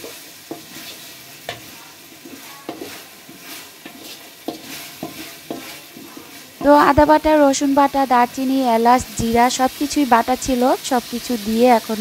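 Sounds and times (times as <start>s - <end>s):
wooden spatula scraping pot: 0.0s - 7.2s
vegetables sizzling in oil: 0.0s - 12.0s.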